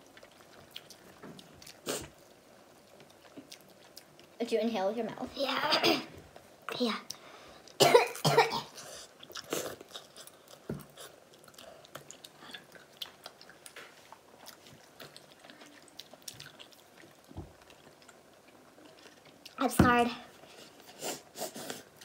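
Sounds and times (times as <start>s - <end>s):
people chewing and eating: 0.0s - 4.4s, 6.0s - 22.0s
person coughing: 5.7s - 6.1s, 7.8s - 8.8s.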